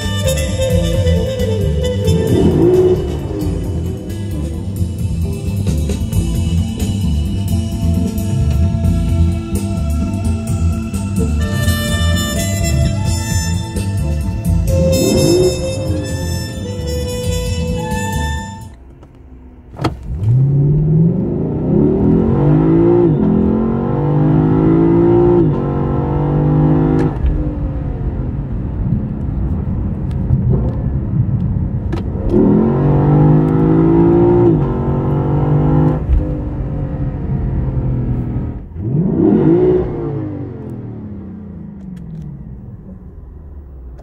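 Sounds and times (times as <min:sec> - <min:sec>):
car engine at full throttle: 0:00.0 - 0:44.0.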